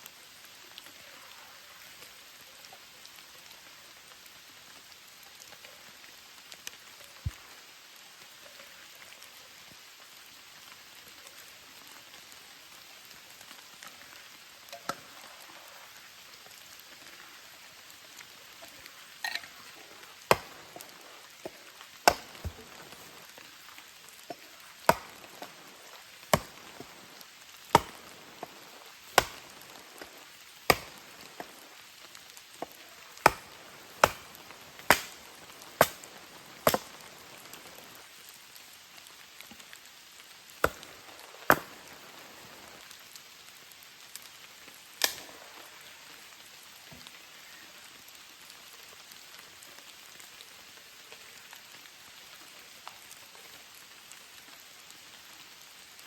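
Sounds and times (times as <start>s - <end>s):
steady rain hiss: 0.0s - 56.0s
sharp chopping blows: 20.3s - 23.2s, 24.8s - 25.7s, 26.3s - 27.0s, 27.7s - 31.6s, 33.2s - 37.8s, 40.6s - 42.0s.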